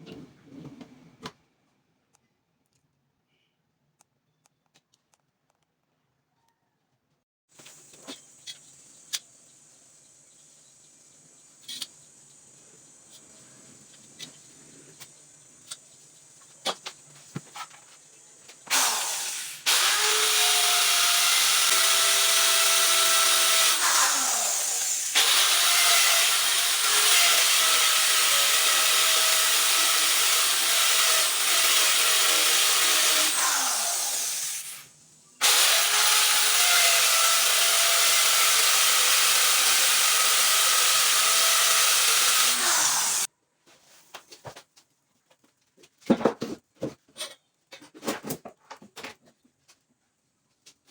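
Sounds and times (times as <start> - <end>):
power tool whining on wood: 18.7 - 43.3.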